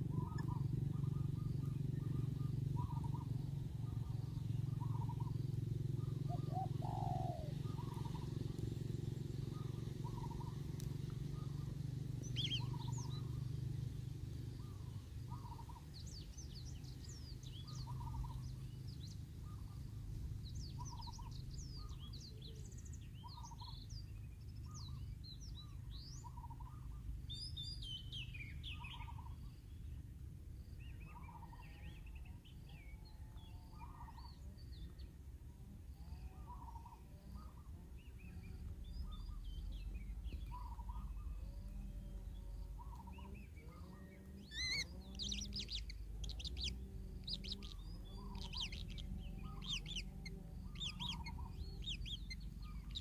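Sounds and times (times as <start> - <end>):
low bird call: 0.0 - 13.6, 14.6 - 30.0, 30.8 - 35.2, 35.9 - 53.0
low rumble: 0.0 - 27.8
high bird chirps: 12.2 - 13.3, 44.4 - 53.0
rapid high chirping: 44.5 - 53.0.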